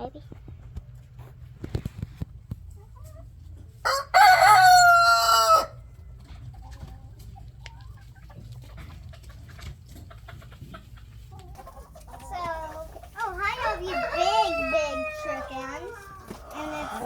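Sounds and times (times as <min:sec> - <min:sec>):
chickens clucking: 0:00.2 - 0:17.0
rooster crowing: 0:03.8 - 0:05.8, 0:13.6 - 0:15.8.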